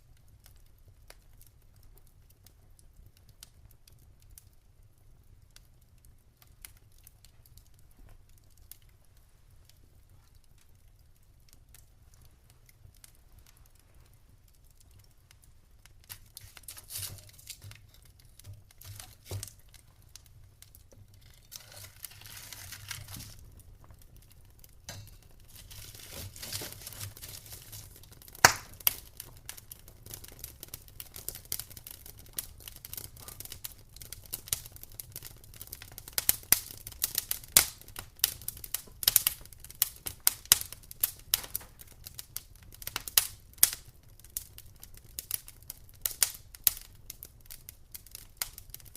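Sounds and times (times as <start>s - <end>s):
soft hiss: 0.0s - 32.4s
wood fire crackling: 0.0s - 48.9s.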